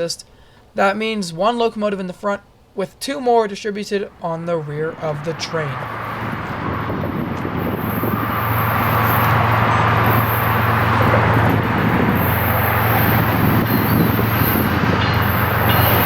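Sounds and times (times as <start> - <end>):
freight train rumbling: 4.0 - 16.0
low engine drone: 4.1 - 16.0.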